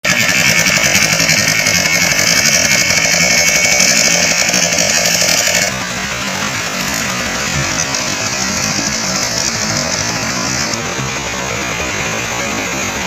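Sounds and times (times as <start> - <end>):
boat engine buzzing drone: 0.0 - 13.0.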